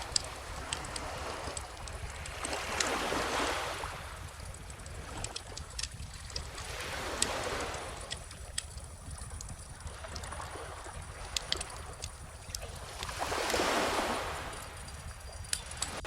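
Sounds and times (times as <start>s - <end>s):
gentle ocean waves: 0.0s - 16.0s
wood fire crackling: 4.2s - 10.3s.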